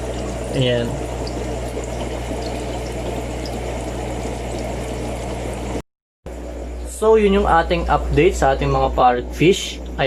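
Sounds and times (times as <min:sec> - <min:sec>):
water rushing: 0:00.0 - 0:05.8
low motor hum: 0:00.0 - 0:10.0.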